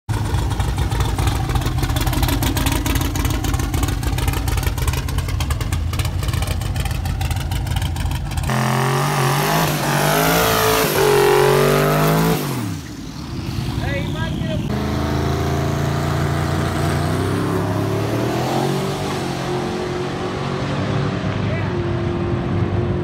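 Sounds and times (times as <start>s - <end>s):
engine idling roughly: 0.1s - 8.6s
engine revving hard: 8.4s - 12.8s, 13.8s - 22.5s.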